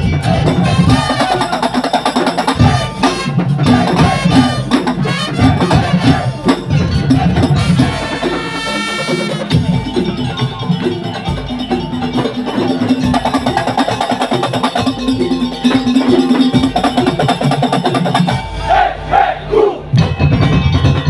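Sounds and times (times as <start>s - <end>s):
percussion ensemble of slit drums: 0.0s - 19.0s, 19.8s - 21.0s
held melodic line: 6.1s - 19.1s.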